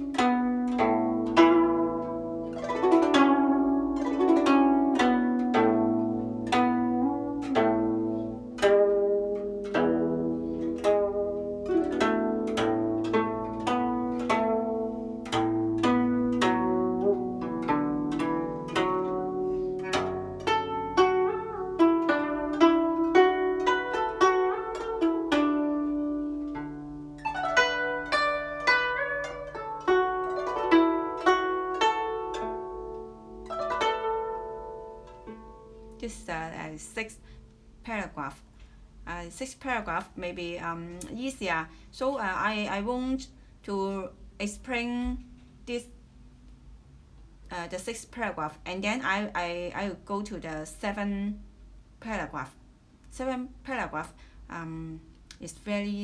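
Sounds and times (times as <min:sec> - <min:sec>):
plucked zither melody: 0:00.0 - 0:38.3.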